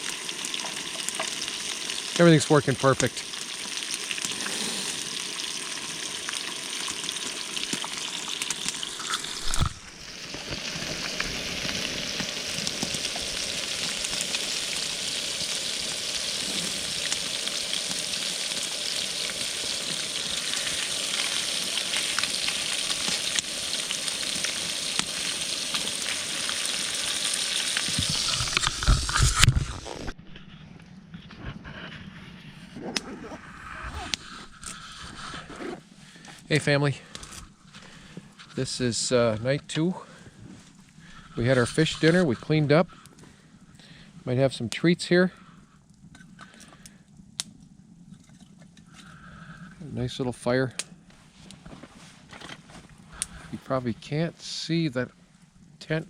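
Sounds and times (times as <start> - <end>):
fish sizzling in a frying pan: 0.0 - 30.1.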